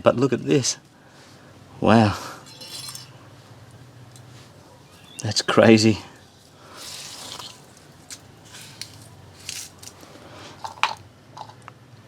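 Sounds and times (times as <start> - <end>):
soft wet rustle: 6.4 - 10.7.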